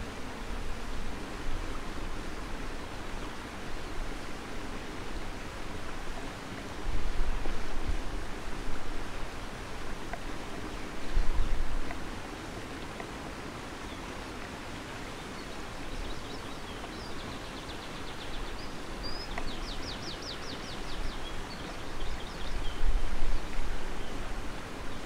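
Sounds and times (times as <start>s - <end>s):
wind rumble on microphone: 0.0s - 12.5s, 18.0s - 25.0s
steady rushing hiss: 0.0s - 25.0s.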